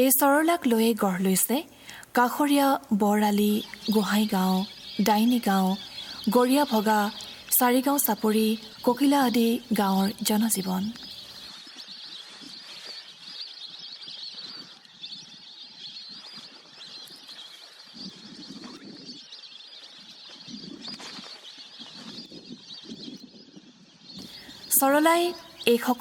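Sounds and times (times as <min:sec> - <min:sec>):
birds chattering: 0:00.0 - 0:26.0
lower bird calls: 0:00.0 - 0:26.0.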